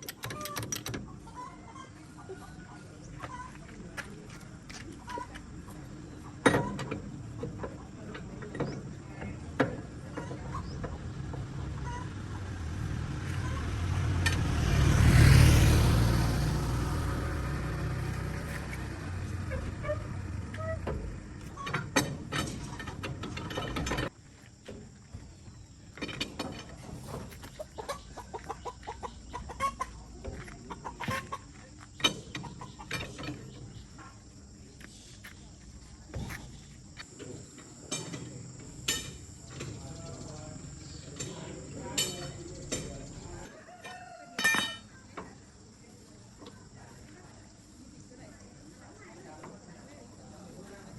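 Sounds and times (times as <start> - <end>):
chickens clucking: 0.4 - 21.9, 26.0 - 35.5.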